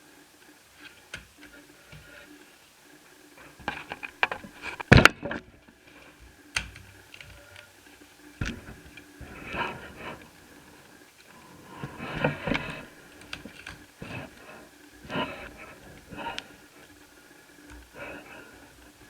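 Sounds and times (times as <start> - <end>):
plastic clicks and snaps: 3.5 - 10.2, 10.9 - 19.0.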